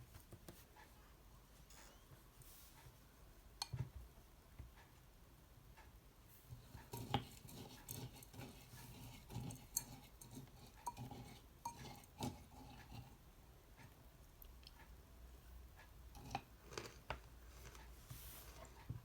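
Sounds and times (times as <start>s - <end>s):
cutlery clinking against dishes: 9.4s - 13.0s.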